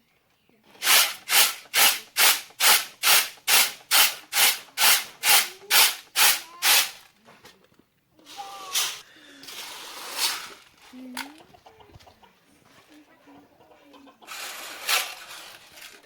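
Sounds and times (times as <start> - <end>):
rhythmic rubbing strokes: 0.8 - 7.0
chicken clucking: 11.0 - 15.7.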